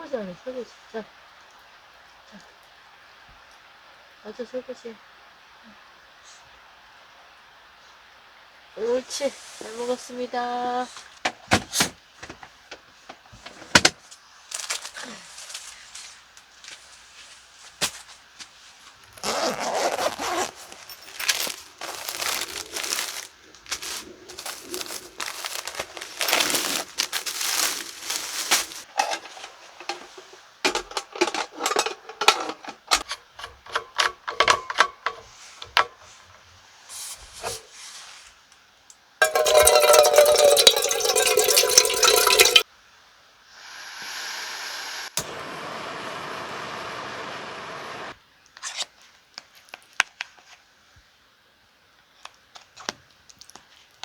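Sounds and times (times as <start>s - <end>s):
rubbing and scraping: 19.2s - 38.2s.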